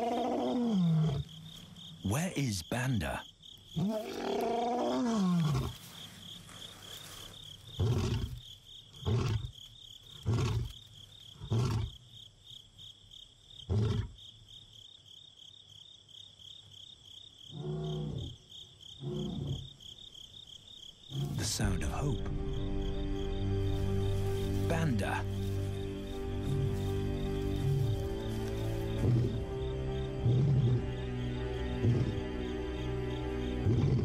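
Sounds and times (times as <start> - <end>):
lion roaring: 0.0 - 1.3, 3.8 - 5.8, 30.2 - 30.9, 33.6 - 34.0
crickets chirping: 0.0 - 34.0.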